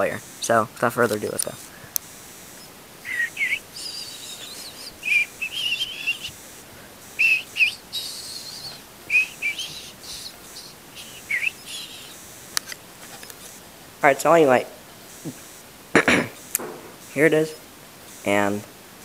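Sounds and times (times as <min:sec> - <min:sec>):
bird chirping: 0:02.6 - 0:06.5, 0:07.1 - 0:13.5.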